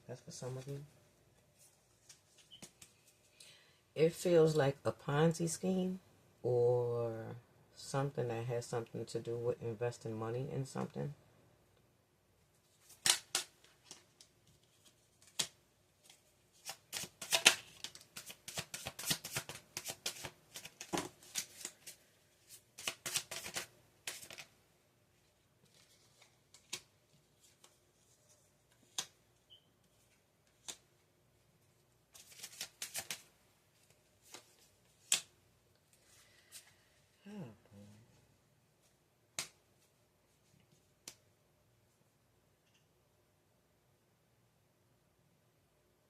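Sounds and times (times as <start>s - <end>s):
cards shuffling and flicking: 12.7s - 24.5s, 25.6s - 29.2s, 29.9s - 30.9s, 32.1s - 36.7s.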